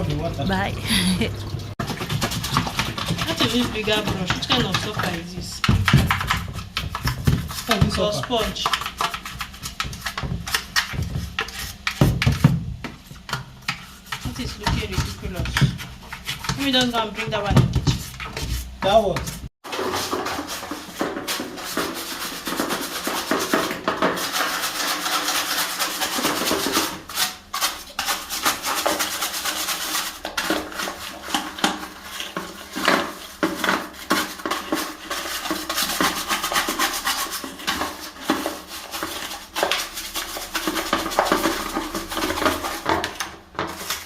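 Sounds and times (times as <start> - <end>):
brush scrubbing inside washing machine: 0.0 - 44.0.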